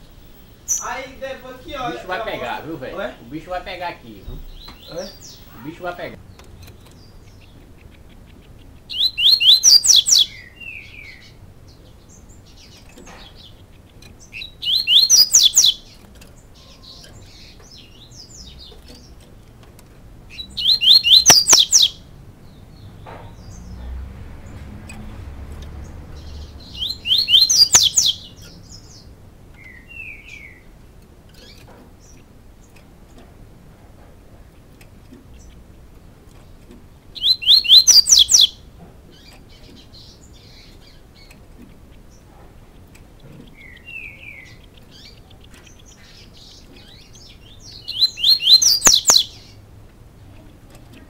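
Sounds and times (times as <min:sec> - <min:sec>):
songbird singing high notes: 0:00.0 - 0:06.2, 0:08.6 - 0:19.1, 0:20.3 - 0:24.0, 0:25.8 - 0:30.7, 0:37.1 - 0:41.4, 0:43.5 - 0:49.6
soft bird call notes: 0:00.0 - 0:19.5, 0:20.2 - 0:24.0, 0:24.6 - 0:49.7.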